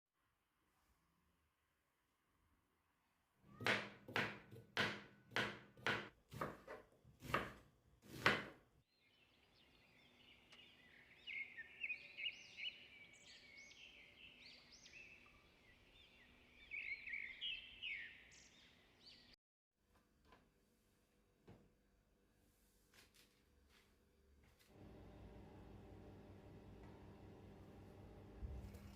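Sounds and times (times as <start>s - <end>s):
birds singing: 8.9s - 19.4s.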